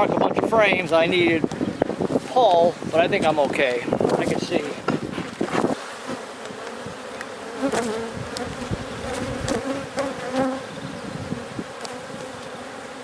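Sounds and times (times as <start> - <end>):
bees buzzing: 1.0 - 13.0
hive frames clicking: 3.1 - 10.5, 11.8 - 12.6.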